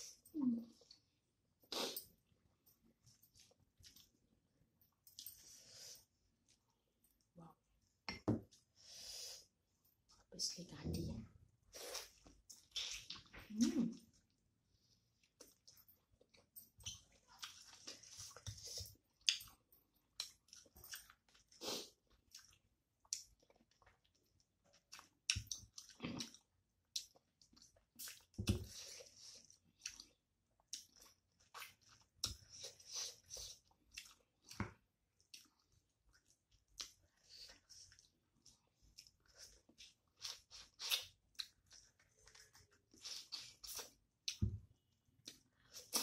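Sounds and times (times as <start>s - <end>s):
person chewing and smacking: 15.2s - 46.0s.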